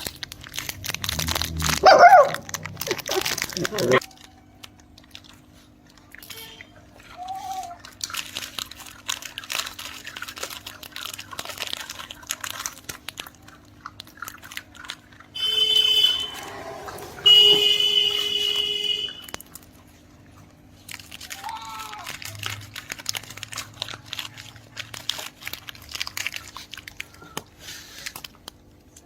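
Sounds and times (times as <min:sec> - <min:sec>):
puppies chewing and crunching: 0:00.0 - 0:29.0
high-pitched squeals: 0:15.4 - 0:19.2.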